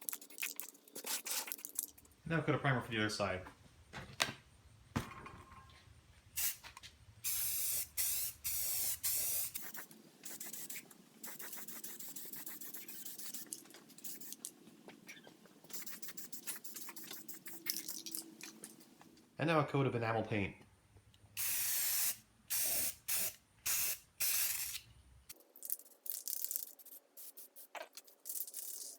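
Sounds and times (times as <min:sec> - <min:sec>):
spray can hissing: 0:00.1 - 0:01.9, 0:06.4 - 0:14.5, 0:15.7 - 0:18.2, 0:21.4 - 0:24.8, 0:26.5 - 0:28.9.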